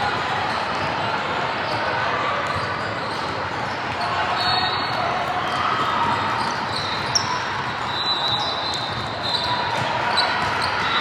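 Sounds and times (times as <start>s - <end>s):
murmur of crowd voices: 0.0s - 11.0s
sneaker squeaks: 2.4s - 11.0s.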